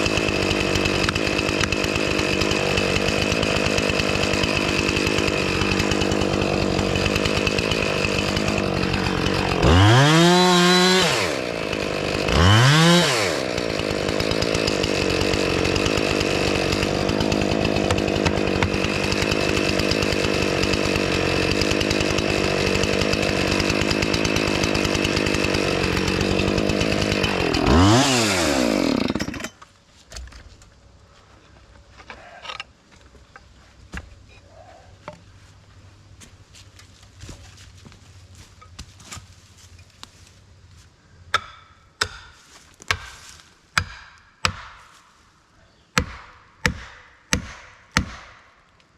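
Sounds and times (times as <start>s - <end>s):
chainsaw revving: 0.0s - 29.5s.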